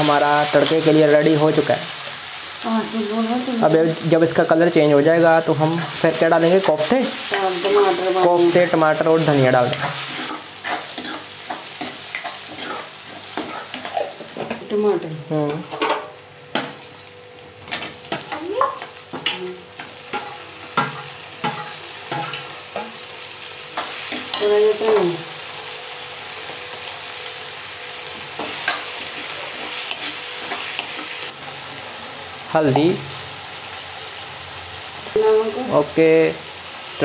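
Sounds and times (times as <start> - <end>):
onions sizzling in hot oil: 0.0 - 37.0
spoon scraping and clinking pan: 9.3 - 14.2.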